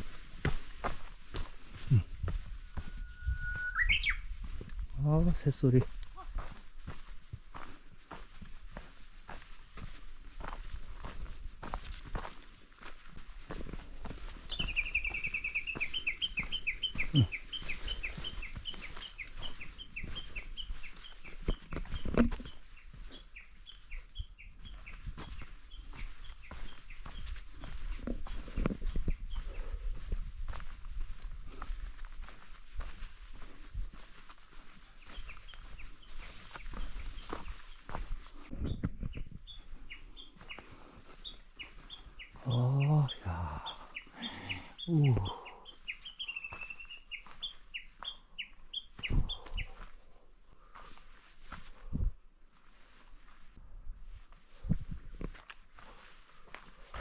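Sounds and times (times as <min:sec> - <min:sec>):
footsteps on trail: 0:00.0 - 0:57.0
songbird whistled notes: 0:02.8 - 0:04.3.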